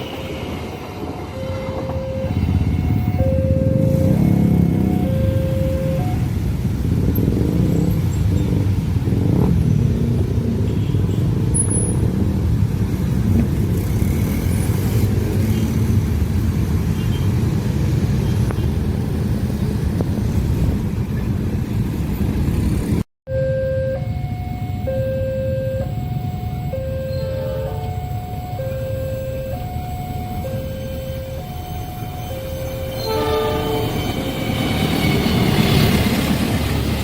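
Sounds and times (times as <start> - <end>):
two-tone crossing warning signal: 0.0 - 6.5, 23.3 - 36.6
train rumbling past: 0.0 - 10.6, 25.9 - 37.0.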